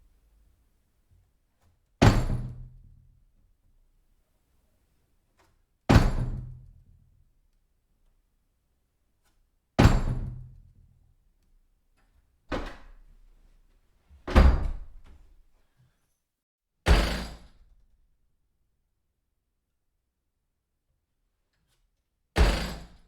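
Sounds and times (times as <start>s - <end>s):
door banging: 14.2s - 15.2s.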